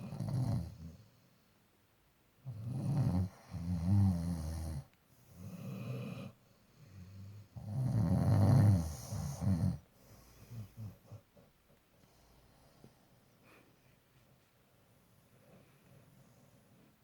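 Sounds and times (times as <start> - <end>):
dog snoring: 0.0 - 1.2, 2.4 - 11.5.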